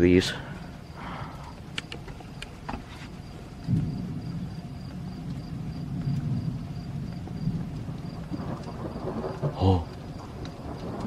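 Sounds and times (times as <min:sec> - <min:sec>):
faint clicks: 0:01.4 - 0:02.6
thunder rumbling: 0:03.2 - 0:11.0.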